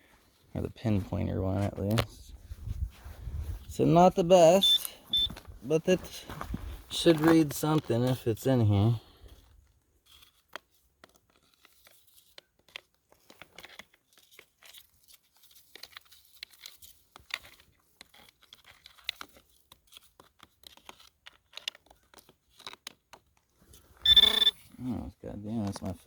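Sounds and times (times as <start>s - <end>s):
gravel and rocks crunching: 0.9s - 9.4s.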